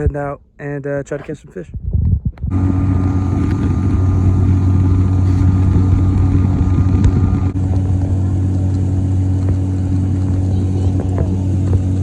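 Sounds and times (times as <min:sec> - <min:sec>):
outboard motor droning: 0:02.5 - 0:12.0.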